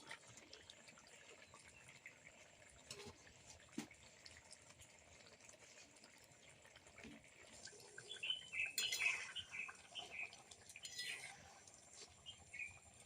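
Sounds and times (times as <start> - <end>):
curry simmering in a pot: 0.0 - 13.0
small birds chirping: 7.8 - 13.0.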